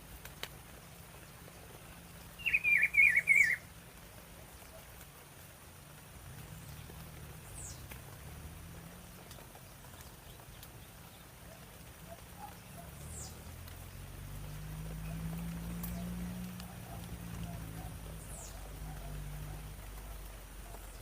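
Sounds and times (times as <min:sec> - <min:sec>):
low outdoor rumble: 0:00.0 - 0:21.0
faint ticks: 0:00.2 - 0:00.6, 0:13.4 - 0:20.9
high-pitched falling bird chirps: 0:02.4 - 0:03.6.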